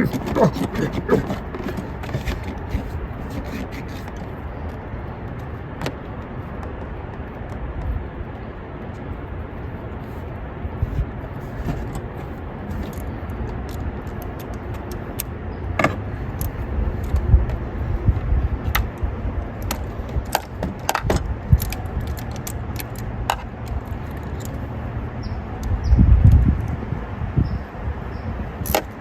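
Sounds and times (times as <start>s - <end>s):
hand tools and metal parts clinking: 0.0s - 4.3s.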